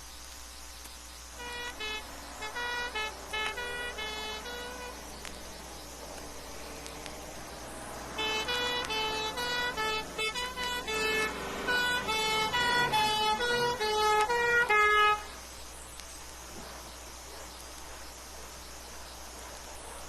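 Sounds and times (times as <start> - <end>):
two-tone emergency vehicle horn: 1.4 - 7.4, 8.0 - 15.4.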